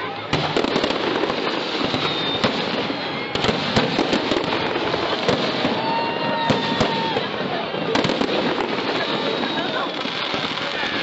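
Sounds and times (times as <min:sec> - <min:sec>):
fireworks bangs: 0:00.0 - 0:11.0
fireworks crackling: 0:00.0 - 0:11.0
steady whistling tone: 0:01.8 - 0:03.3.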